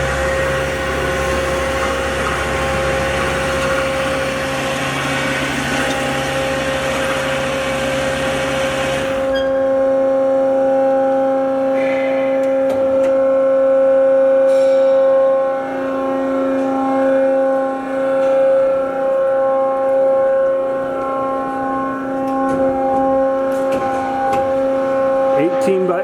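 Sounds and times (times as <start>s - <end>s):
bandsaw humming and whining: 0.0s - 26.0s.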